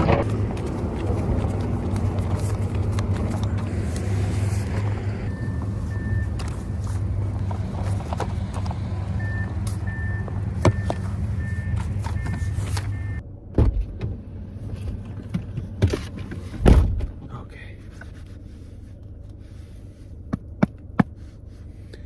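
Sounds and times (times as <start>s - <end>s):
car engine running: 0.0s - 12.7s.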